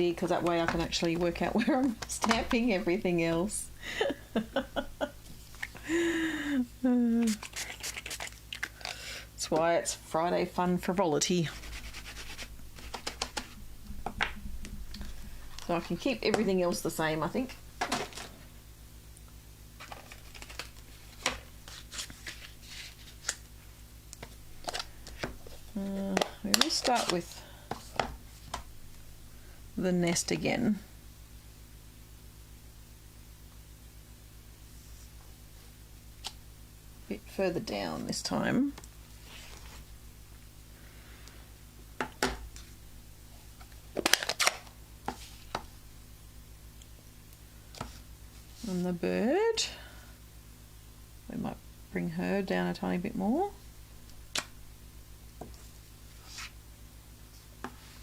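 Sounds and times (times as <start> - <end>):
paper rustling: 11.4 - 13.6, 19.8 - 23.4, 24.2 - 28.6.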